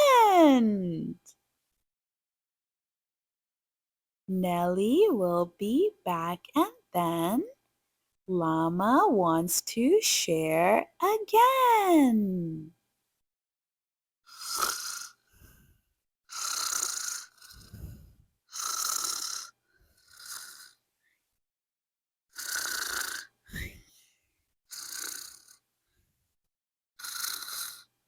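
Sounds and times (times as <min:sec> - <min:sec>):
person pretend snoring: 0:14.3 - 0:15.2, 0:16.3 - 0:20.8, 0:22.3 - 0:23.8, 0:24.7 - 0:25.6, 0:27.0 - 0:27.9
soft low out-breaths: 0:15.3 - 0:15.8, 0:17.5 - 0:18.3, 0:23.5 - 0:24.1.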